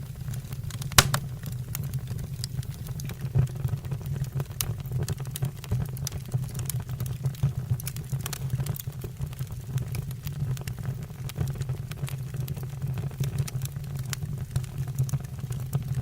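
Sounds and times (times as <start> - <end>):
wood fire crackling and popping: 1.0 - 1.5.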